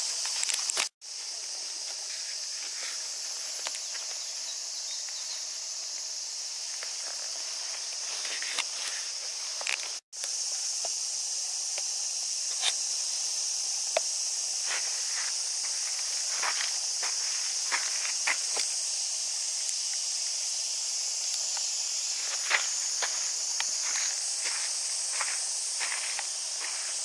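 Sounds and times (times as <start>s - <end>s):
cicadas hissing chorus: 0.0s - 27.0s
footstep-like crunches: 14.7s - 18.7s, 22.2s - 27.0s.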